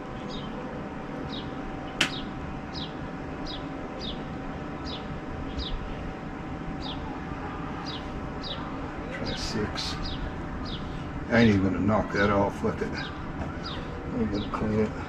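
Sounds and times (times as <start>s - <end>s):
bird chirping: 0.0s - 6.0s, 6.8s - 7.1s, 7.8s - 11.5s, 12.2s - 15.0s
steady low hum: 0.0s - 15.0s
sharp click: 2.0s - 2.2s.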